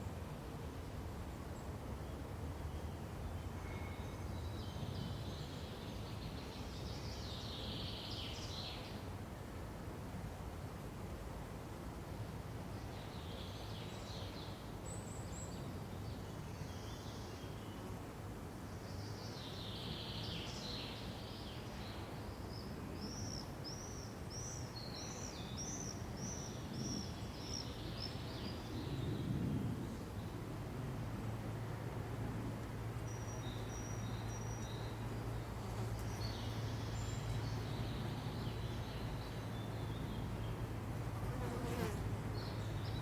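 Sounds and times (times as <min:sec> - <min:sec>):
low forest ambience: 0:18.5 - 0:43.0
songbirds chirping: 0:33.0 - 0:40.8.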